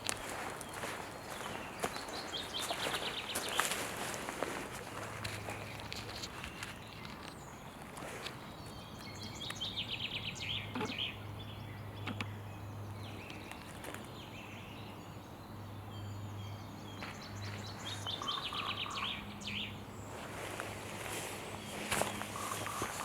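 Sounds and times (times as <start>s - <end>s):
sharp clicks: 12.0s - 12.4s.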